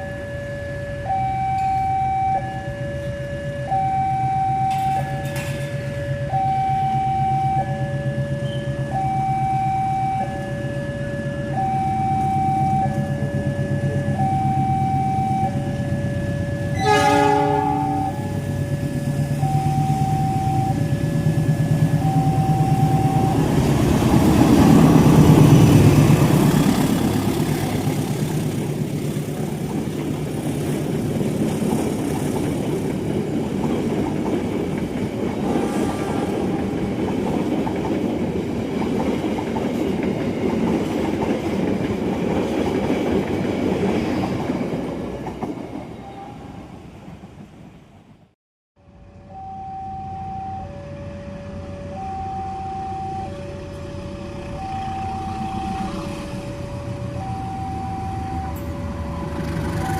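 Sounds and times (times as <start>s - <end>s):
two-tone crossing warning alarm: 0.0s - 28.2s, 49.1s - 59.9s
train passing and rattling: 0.0s - 49.4s, 50.0s - 59.9s
train horn blast: 16.7s - 18.5s, 35.4s - 36.8s.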